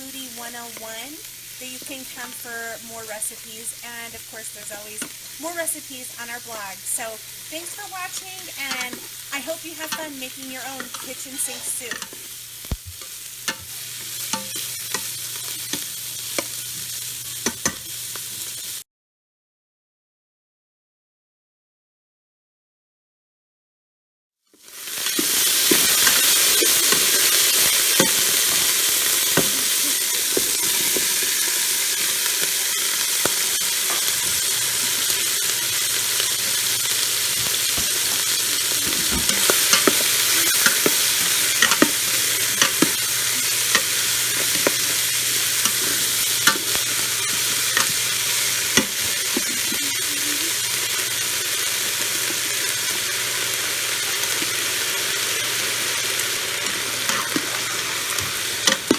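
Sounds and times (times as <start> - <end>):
food sizzling in pot: 0.0 - 18.8, 24.5 - 58.9
utensil stirring taps: 7.4 - 16.5, 17.4 - 17.9, 25.1 - 49.9, 56.6 - 58.9.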